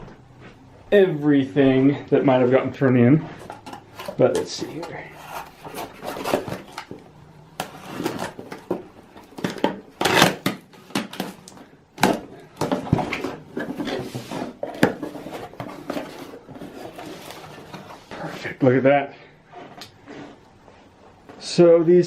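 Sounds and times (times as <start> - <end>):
rustling and scraping: 1.7 - 21.6
parts knocking and clattering: 3.4 - 17.9.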